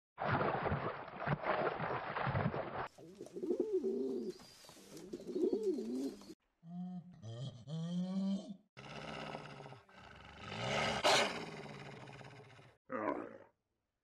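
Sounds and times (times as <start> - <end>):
pigeon cooing: 3.1 - 6.4.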